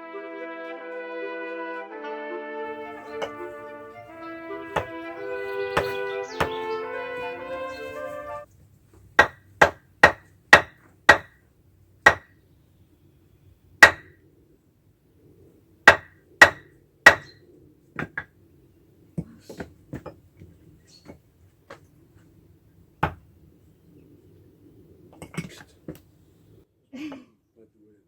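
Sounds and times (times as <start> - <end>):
splitting tool striking logs: 2.9 - 3.5, 4.7 - 5.0, 5.7 - 6.6, 9.2 - 11.4, 12.1 - 12.3, 13.8 - 14.1, 15.9 - 17.4, 23.0 - 23.2
wood knocking and clattering: 4.8 - 5.0, 9.2 - 11.4, 12.1 - 12.3, 13.8 - 14.1, 15.9 - 17.3, 19.2 - 21.8, 23.0 - 23.2.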